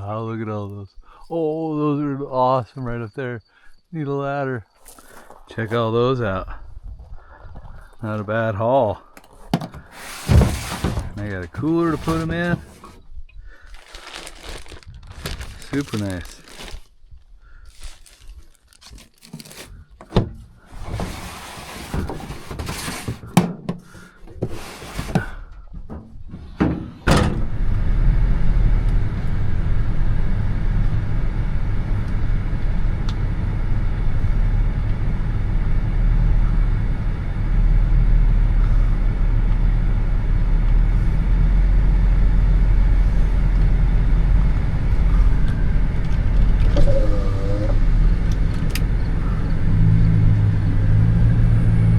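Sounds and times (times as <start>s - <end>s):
truck engine rumble: 4.9s - 24.3s, 25.2s - 51.9s
rustling and crinkling of handling: 9.2s - 20.1s.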